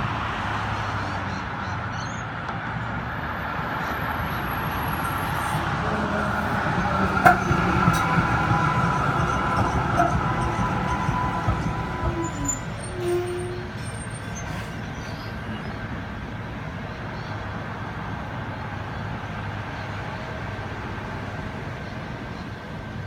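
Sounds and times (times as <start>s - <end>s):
tram running on rails: 0.0s - 23.0s
wheels clicking: 4.9s - 15.7s.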